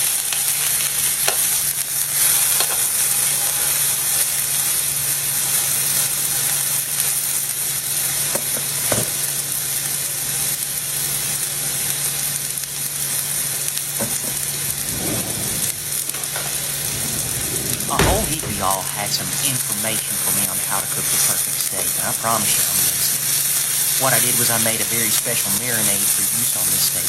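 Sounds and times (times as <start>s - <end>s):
steak sizzling on a griddle: 0.0s - 18.0s, 19.7s - 27.0s
low hum: 14.4s - 19.7s.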